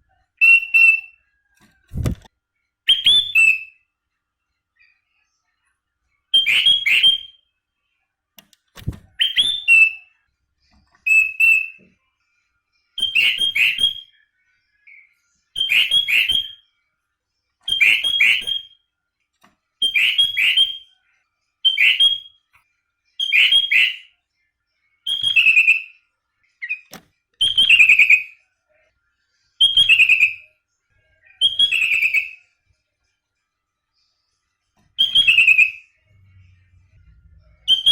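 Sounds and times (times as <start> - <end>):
bulbul whistled song: 0.4 - 2.3, 2.9 - 3.9, 6.3 - 7.6, 8.8 - 10.2, 11.0 - 11.9, 13.0 - 16.8, 17.6 - 18.9, 19.8 - 21.0, 21.6 - 22.6, 23.2 - 24.2, 25.0 - 28.4, 29.6 - 30.6, 31.2 - 32.6, 34.9 - 37.9.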